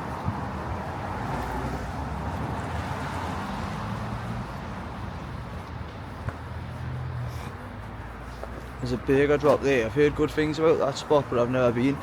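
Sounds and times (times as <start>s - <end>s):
tyres hissing on wet road: 0.0s - 8.8s.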